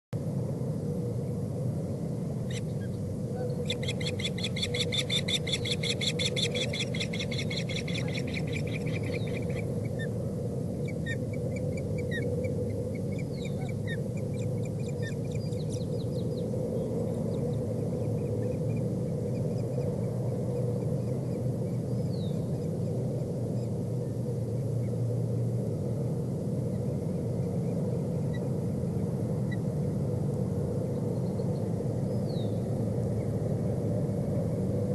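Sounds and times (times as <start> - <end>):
osprey chirping: 2.4 - 10.2, 10.8 - 16.5.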